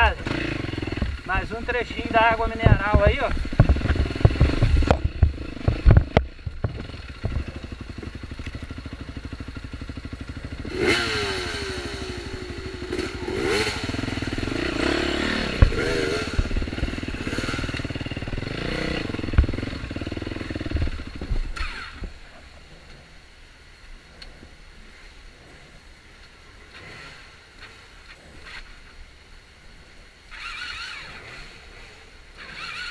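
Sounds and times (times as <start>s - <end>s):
motorcycle engine revving: 0.0s - 23.2s, 25.0s - 29.2s, 29.8s - 32.9s
knocks and clatter over rough ground: 0.8s - 9.1s, 14.4s - 22.2s.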